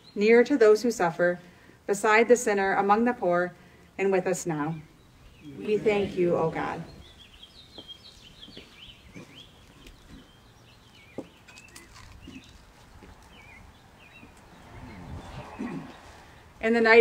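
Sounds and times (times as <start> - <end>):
small birds chirping: 3.8 - 17.0.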